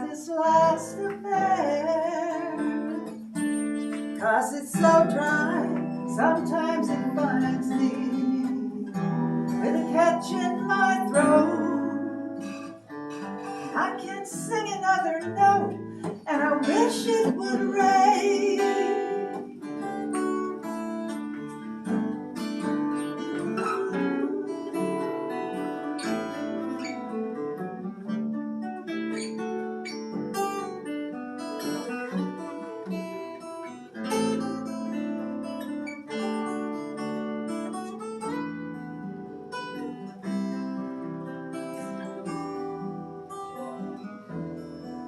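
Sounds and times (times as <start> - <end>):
acoustic guitar picking and strumming: 0.0 - 45.0.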